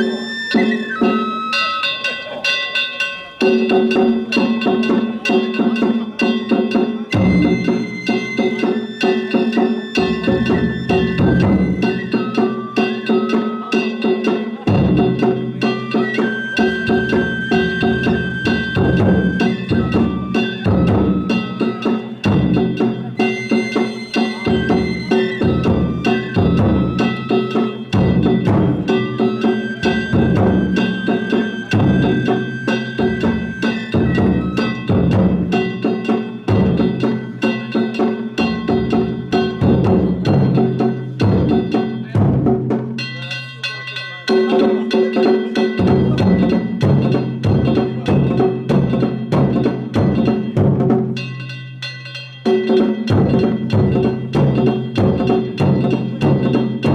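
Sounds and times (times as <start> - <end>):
flute melody: 0.0 - 3.4, 7.0 - 35.9
hand gongs beating: 0.0 - 56.9
taiko drums beating: 0.0 - 56.9.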